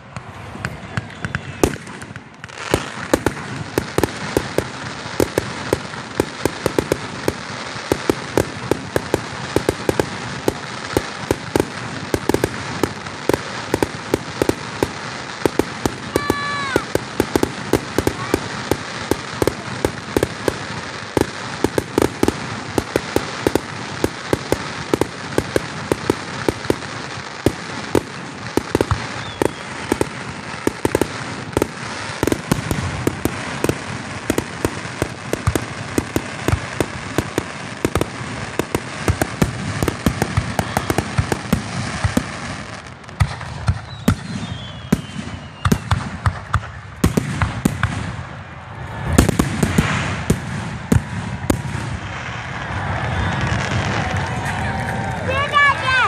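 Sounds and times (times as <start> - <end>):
fireworks crackling: 0.0 - 56.0
deep firework burst: 0.1 - 56.0.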